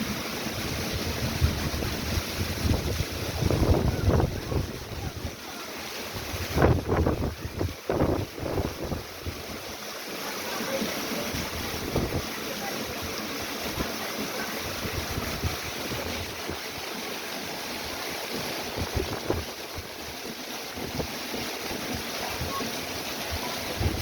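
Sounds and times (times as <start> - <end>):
heavy rain pouring: 0.0 - 24.0
wind buffeting microphone: 0.6 - 5.3, 6.2 - 9.6, 14.6 - 16.6, 18.3 - 20.0, 23.3 - 24.0.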